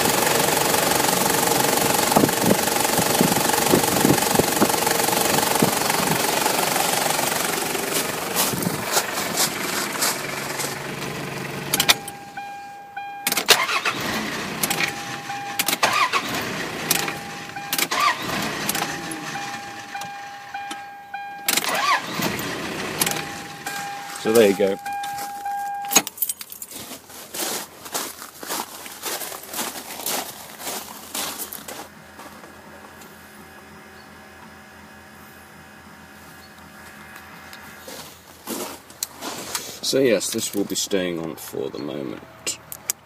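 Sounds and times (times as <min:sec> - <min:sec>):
diesel engine running: 0:00.0 - 0:43.0
clicks: 0:11.7 - 0:12.5, 0:14.6 - 0:16.0, 0:16.9 - 0:18.0, 0:23.0 - 0:26.5
repeating on-off beep: 0:11.7 - 0:13.6, 0:14.6 - 0:16.0, 0:16.9 - 0:18.1, 0:18.8 - 0:22.0, 0:23.0 - 0:26.1.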